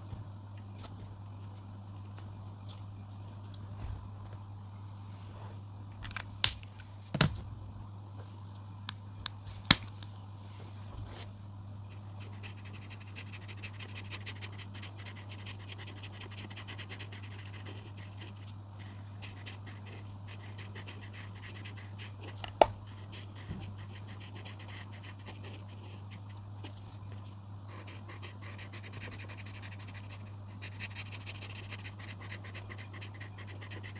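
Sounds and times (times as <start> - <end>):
steady low hum: 0.0 - 33.9
coloring strokes on paper: 12.2 - 26.8, 27.7 - 33.9.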